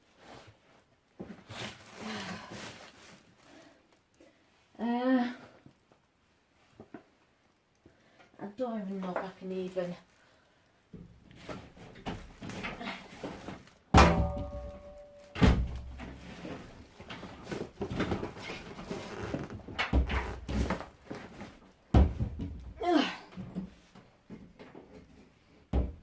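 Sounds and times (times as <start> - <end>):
heavy thumps on metal casing: 13.9 - 16.1.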